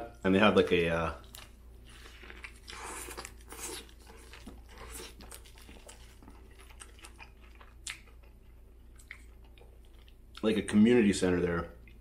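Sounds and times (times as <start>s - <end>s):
person chewing food: 1.2s - 10.4s.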